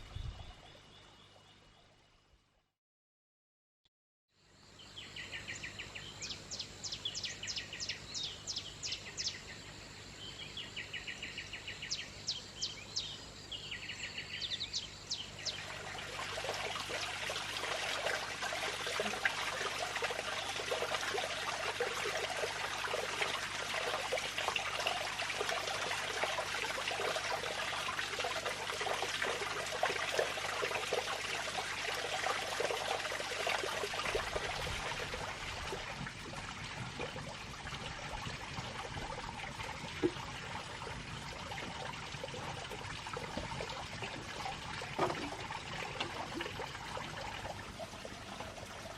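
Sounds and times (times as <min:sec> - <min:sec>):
running water trickling: 0:13.8 - 0:48.9.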